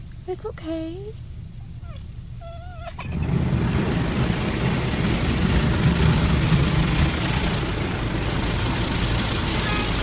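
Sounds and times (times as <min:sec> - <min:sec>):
car wash rushing roar: 0:03.0 - 0:10.0.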